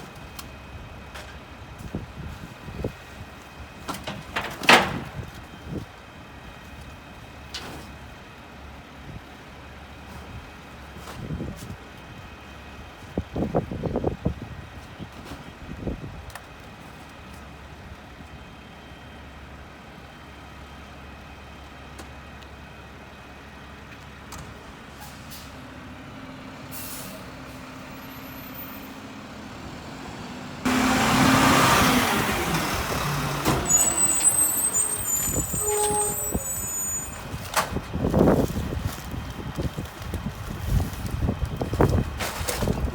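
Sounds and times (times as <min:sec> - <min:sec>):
truck diesel engine running: 0:25.6 - 0:41.6
air brake hiss: 0:26.7 - 0:27.3
high squeals: 0:32.6 - 0:37.4.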